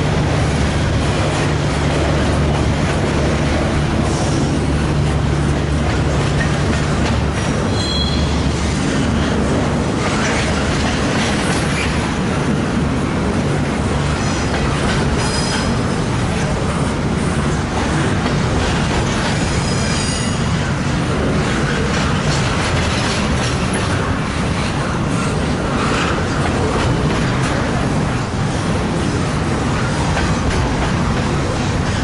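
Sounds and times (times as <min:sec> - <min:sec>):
train wheels rumbling on rails: 0:00.0 - 0:32.0
high-pitched wheel squeals: 0:07.7 - 0:08.4.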